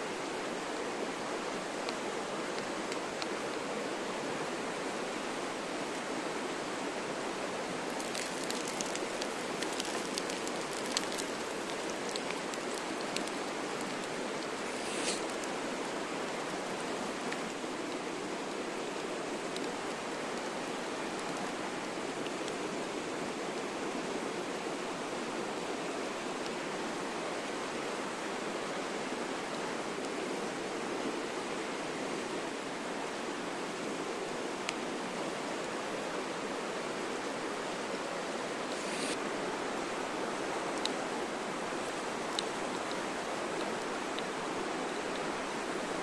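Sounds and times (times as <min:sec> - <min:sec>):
short hiss: 0:14.6 - 0:15.4, 0:38.6 - 0:39.2.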